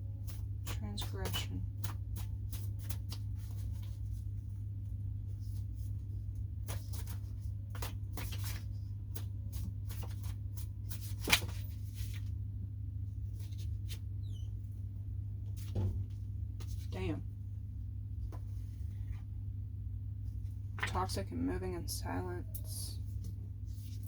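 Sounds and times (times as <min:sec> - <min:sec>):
steady low hum: 0:00.0 - 0:24.0
cards rustling and sliding: 0:06.7 - 0:12.3.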